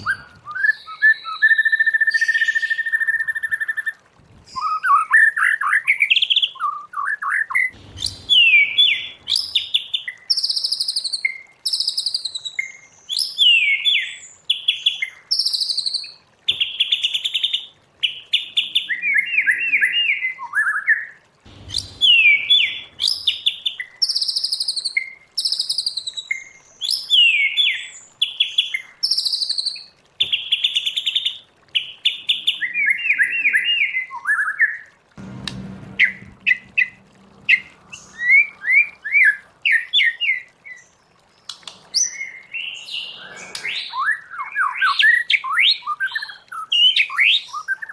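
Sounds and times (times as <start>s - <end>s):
bird singing whistled notes: 0.0s - 3.6s.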